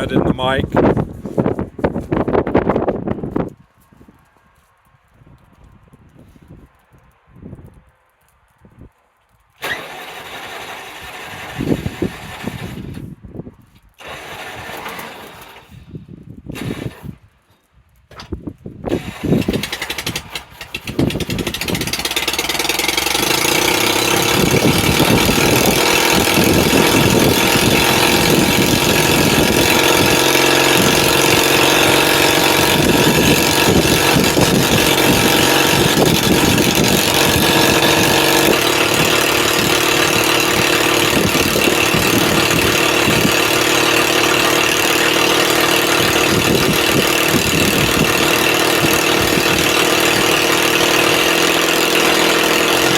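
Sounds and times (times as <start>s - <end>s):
sawmill engine cranking and running: 9.6s - 13.2s, 14.0s - 17.2s, 18.9s - 52.9s.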